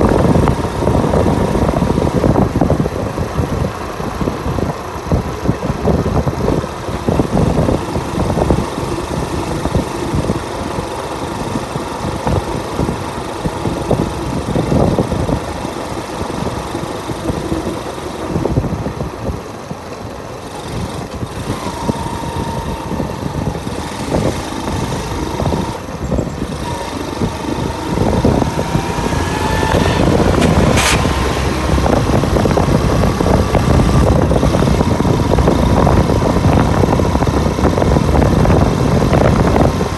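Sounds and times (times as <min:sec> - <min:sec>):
motorcycle engine running: 0:00.0 - 0:39.9
steady rushing noise: 0:26.6 - 0:35.6
sharp click: 0:29.6 - 0:31.4.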